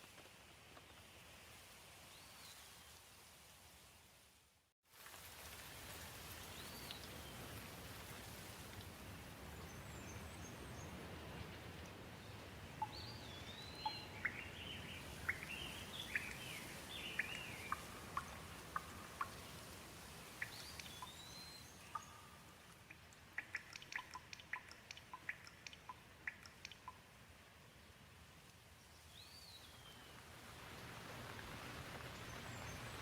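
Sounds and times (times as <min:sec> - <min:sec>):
gentle rain hiss: 0:00.0 - 0:33.0
sharp water drips: 0:12.7 - 0:27.2
bird chirping: 0:12.8 - 0:19.5, 0:20.4 - 0:27.0.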